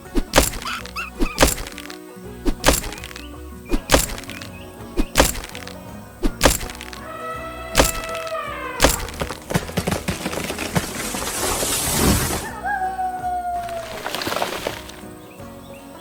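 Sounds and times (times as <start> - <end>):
rapid small clicks: 0.0 - 7.1
sharp knocking hits: 0.0 - 7.1, 7.8 - 10.1
cartoon soundtrack music: 6.4 - 9.4.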